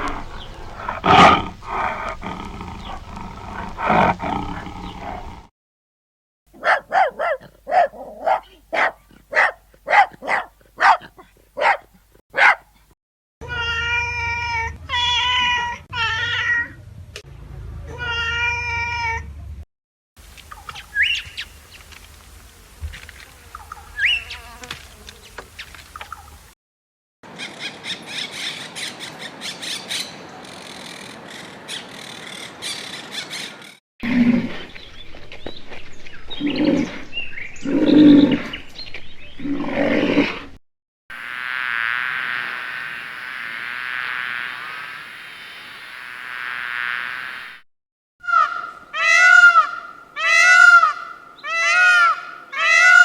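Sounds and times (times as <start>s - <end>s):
tiger roaring and growling: 0.0s - 5.5s, 34.0s - 34.8s, 36.3s - 38.7s, 39.3s - 40.6s
dog barking: 6.5s - 12.8s.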